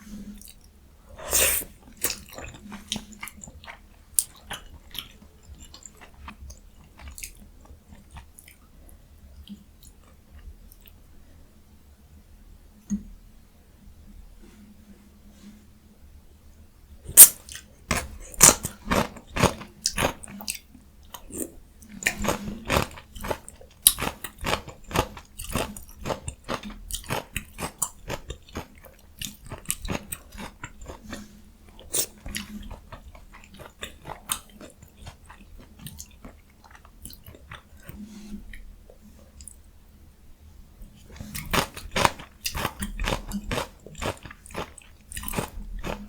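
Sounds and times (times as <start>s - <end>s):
crisp eating crunches: 17.1s - 38.0s, 41.1s - 46.0s
wet chewing clicks: 17.1s - 38.0s, 41.1s - 46.0s.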